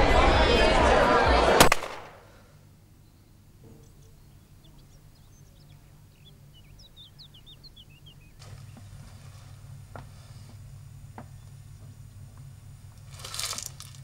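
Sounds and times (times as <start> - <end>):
low steady hum: 0.0 - 14.0
faint birds chirping: 2.3 - 13.1.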